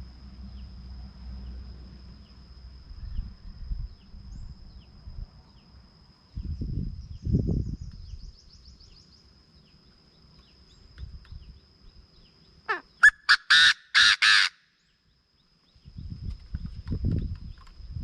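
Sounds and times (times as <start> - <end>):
faint high-pitched whine: 0.0 - 13.2
bird calling harshly: 12.7 - 14.8.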